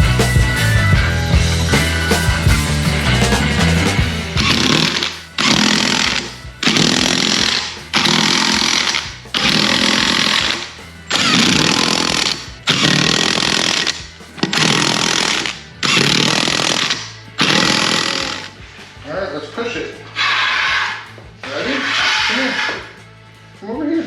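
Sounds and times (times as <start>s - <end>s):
power tool bursts: 3.7s - 18.7s, 20.2s - 23.0s.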